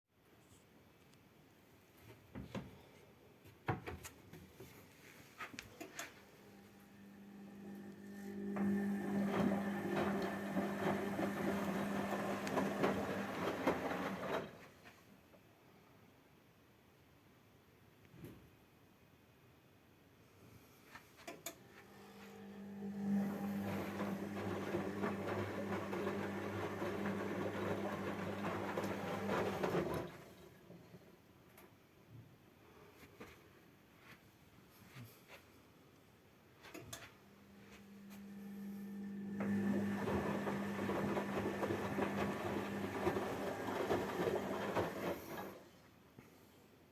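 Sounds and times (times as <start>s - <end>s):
washing machine motor humming: 6.5s - 14.6s, 21.6s - 30.9s, 37.5s - 45.8s.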